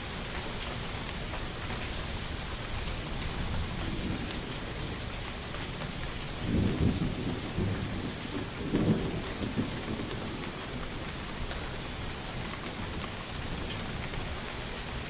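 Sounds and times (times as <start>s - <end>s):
heavy rain: 0.0s - 15.0s
low thunder rumbling: 3.1s - 14.5s.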